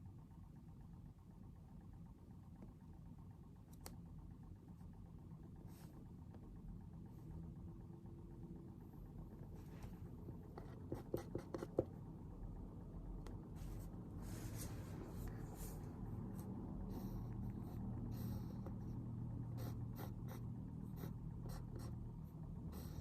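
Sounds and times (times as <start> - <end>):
low room rumble: 0.0 - 23.0
soft rustle: 13.6 - 15.9.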